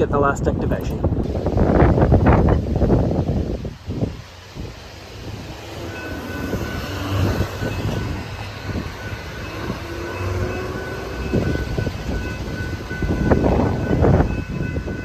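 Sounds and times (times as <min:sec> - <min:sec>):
train rumbling past: 0:00.9 - 0:15.0
level crossing bell ringing: 0:05.8 - 0:15.0.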